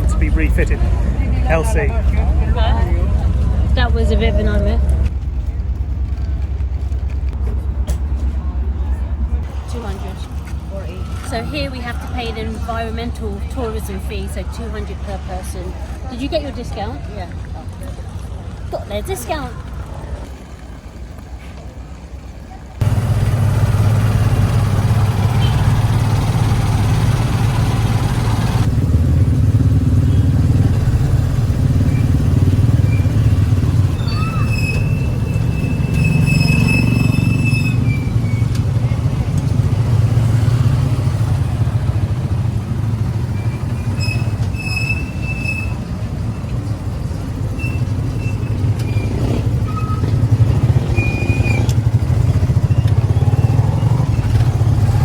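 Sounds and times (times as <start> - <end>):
horn honks: 22.8 - 28.7
motorcycle engine running: 22.8 - 55.0.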